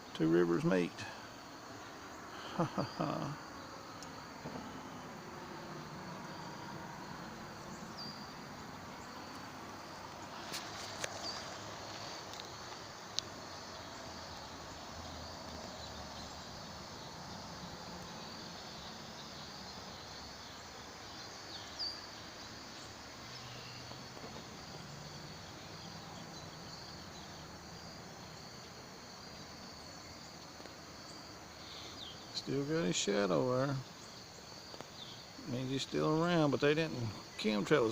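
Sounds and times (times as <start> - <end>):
insects chirring: 0.0 - 37.9
small ticks: 3.9 - 4.2, 9.3 - 16.3, 30.4 - 30.8, 34.6 - 35.2.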